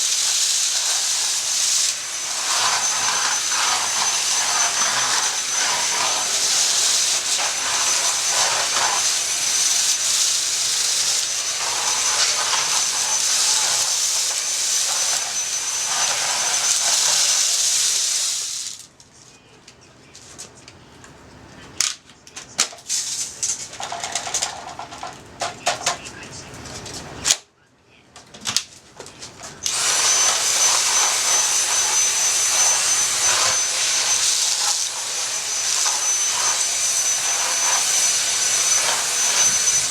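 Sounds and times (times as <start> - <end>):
loud steady hiss: 0.0 - 18.9.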